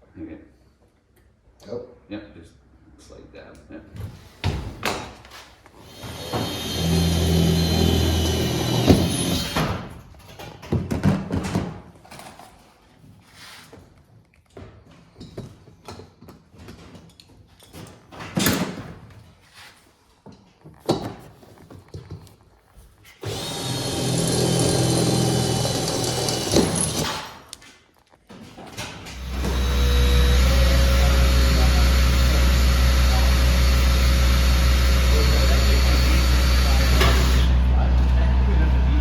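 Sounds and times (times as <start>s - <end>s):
power tool running: 5.8s - 9.8s, 23.2s - 27.4s, 29.1s - 39.0s.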